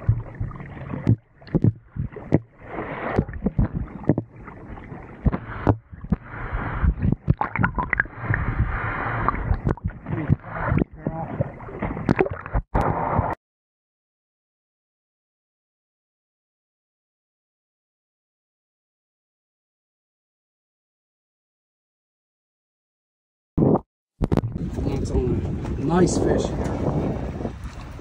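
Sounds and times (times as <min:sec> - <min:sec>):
sharp knocks and thumps: 0:00.0 - 0:04.3, 0:05.2 - 0:08.7, 0:09.3 - 0:11.2
water splashing against boat: 0:00.0 - 0:13.4, 0:24.2 - 0:28.0
wind: 0:00.0 - 0:13.4, 0:24.2 - 0:28.0.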